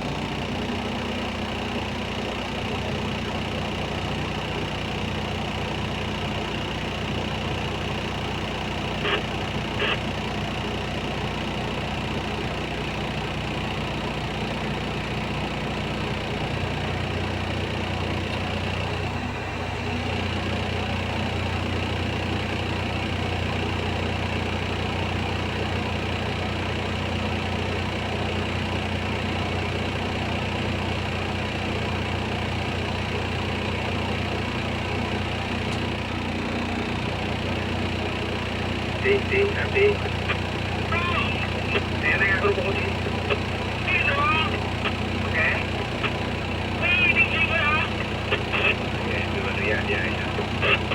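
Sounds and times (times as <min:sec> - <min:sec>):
diesel engine droning: 0:00.0 - 0:50.9.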